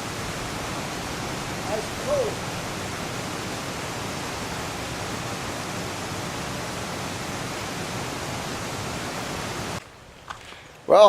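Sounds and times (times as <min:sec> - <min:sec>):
creek water rushing: 0:00.0 - 0:10.2.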